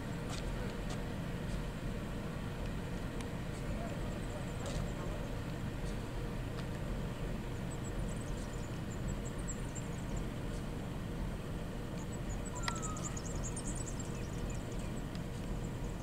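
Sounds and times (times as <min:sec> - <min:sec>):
locomotive low rumble: 0:00.0 - 0:16.0
faint high chirping: 0:12.0 - 0:15.0.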